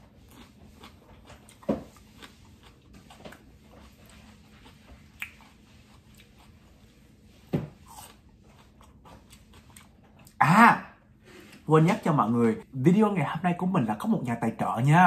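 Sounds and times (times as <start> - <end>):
chewing raw pepper: 0.0 - 10.4.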